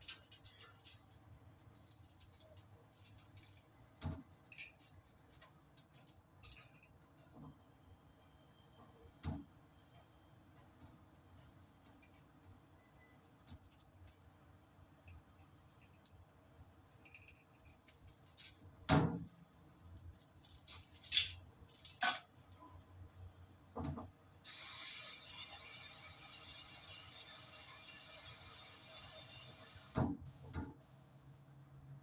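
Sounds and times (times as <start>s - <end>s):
metal tools clinking: 20.3s - 22.5s.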